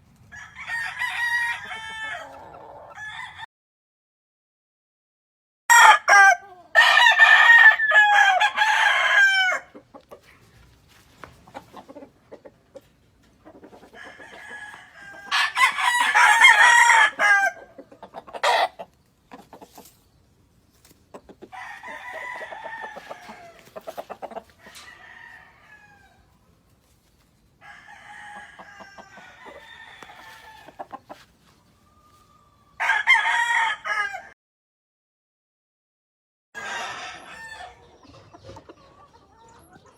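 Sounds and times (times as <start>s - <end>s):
roosters crowing: 0.2s - 3.5s, 5.7s - 9.9s, 13.5s - 18.9s, 21.4s - 26.5s, 27.6s - 34.4s, 36.6s - 38.0s.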